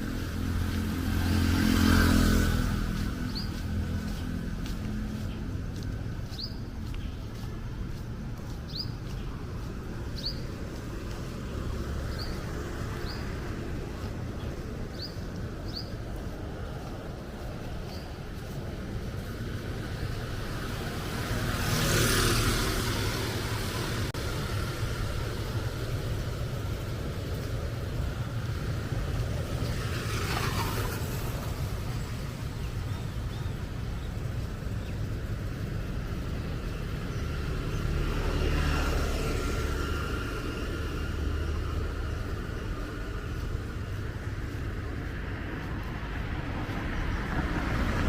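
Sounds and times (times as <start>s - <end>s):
low traffic rumble: 0.0s - 48.0s
tyres hissing on wet road: 16.4s - 48.0s.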